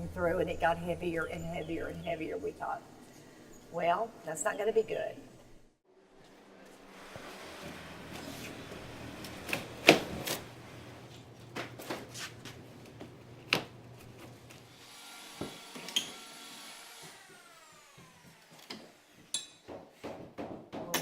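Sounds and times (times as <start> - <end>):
electric motor humming: 14.6 - 19.2
sharp knocks and clatter: 19.3 - 21.0.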